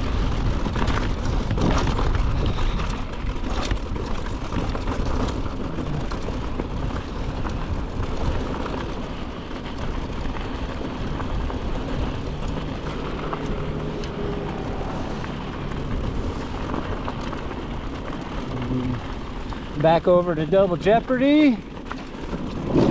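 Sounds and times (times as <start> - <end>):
bike clicks and rattles: 0.0 - 22.9
wind and tyre noise: 0.0 - 22.9.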